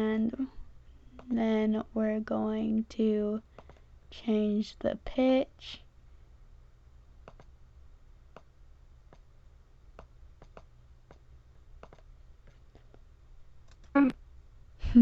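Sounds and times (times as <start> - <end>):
steady low hum: 0.0 - 15.0
computer mouse clicks: 3.6 - 3.8, 7.2 - 7.5, 8.3 - 8.5, 10.0 - 13.0, 13.6 - 14.0.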